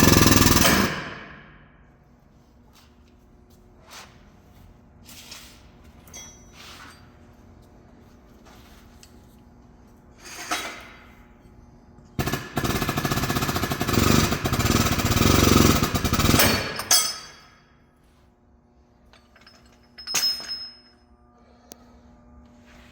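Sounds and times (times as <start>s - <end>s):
pneumatic air tool hammering: 0.0s - 1.4s, 12.2s - 17.3s.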